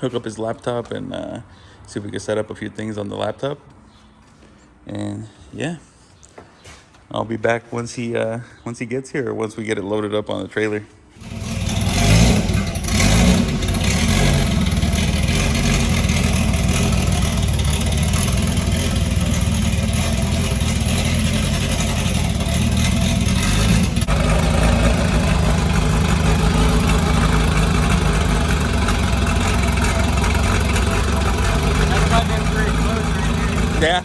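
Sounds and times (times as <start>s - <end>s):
turbocharged car engine running: 11.2s - 34.0s.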